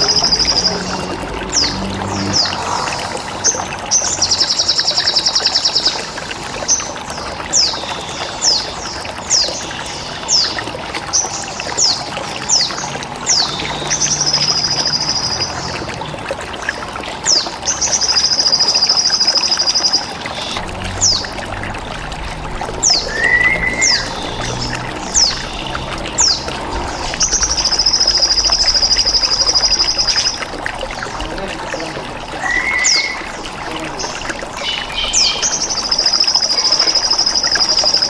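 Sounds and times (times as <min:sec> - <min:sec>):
trickling water: 0:00.0 - 0:38.0
bird chirping: 0:18.0 - 0:30.4, 0:31.8 - 0:38.0.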